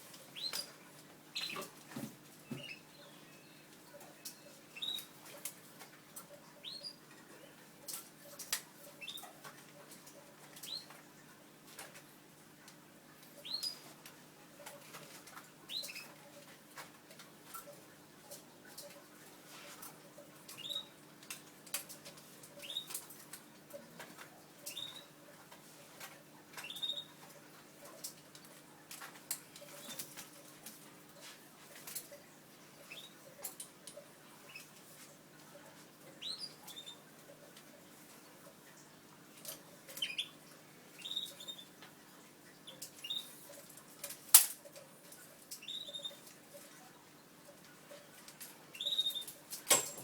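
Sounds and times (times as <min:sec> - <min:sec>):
canaries chirping: 0:00.3 - 0:01.7, 0:02.4 - 0:05.1, 0:06.6 - 0:07.5, 0:08.9 - 0:09.4, 0:13.4 - 0:13.9, 0:15.7 - 0:16.2, 0:20.6 - 0:21.0, 0:22.6 - 0:23.0, 0:24.6 - 0:25.2, 0:26.6 - 0:27.2, 0:32.8 - 0:33.3, 0:36.1 - 0:37.1, 0:39.9 - 0:41.8, 0:42.6 - 0:43.6, 0:45.6 - 0:46.3, 0:48.7 - 0:49.4
chicks cheeping: 0:24.6 - 0:25.2, 0:26.6 - 0:27.2, 0:41.0 - 0:41.8, 0:42.6 - 0:43.4, 0:45.6 - 0:46.2, 0:48.7 - 0:49.4.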